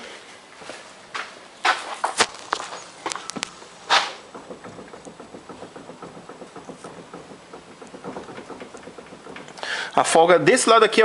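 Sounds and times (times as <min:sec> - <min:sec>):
suspension clicks and knocks: 0:02.1 - 0:10.4.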